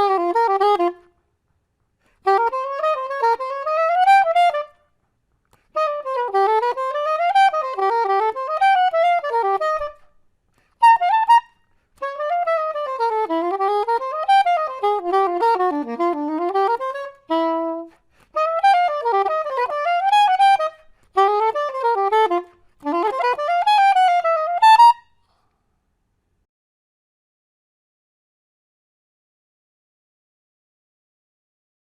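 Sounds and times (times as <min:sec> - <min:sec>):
soprano saxophone playing: 0:00.0 - 0:01.2, 0:02.2 - 0:04.9, 0:05.7 - 0:10.1, 0:10.8 - 0:25.1.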